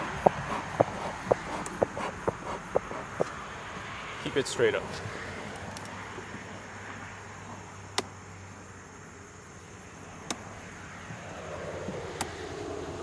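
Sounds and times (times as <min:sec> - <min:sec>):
sharp wooden clicks: 0:00.0 - 0:03.5
steady low hum: 0:00.0 - 0:05.5.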